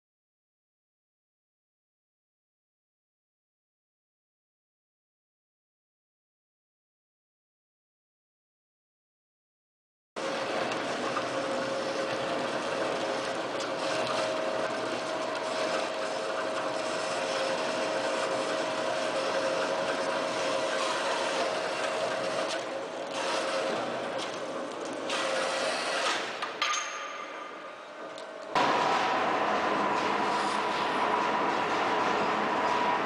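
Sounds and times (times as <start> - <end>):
machinery grinding: 10.2 - 26.4
machinery hum: 10.2 - 33.0.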